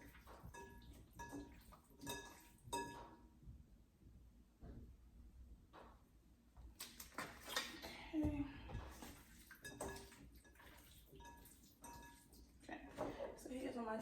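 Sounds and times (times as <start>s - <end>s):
dish and utensils clinking: 0.0s - 3.2s, 8.7s - 13.4s.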